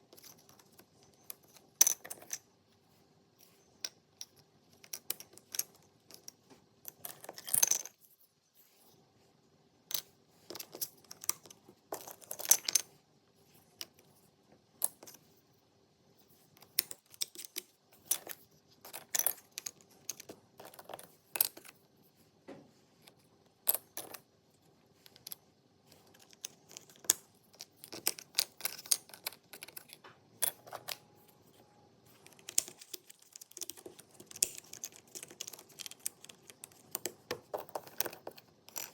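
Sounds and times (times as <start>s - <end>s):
puzzle pieces clicking: 32.2s - 38.9s.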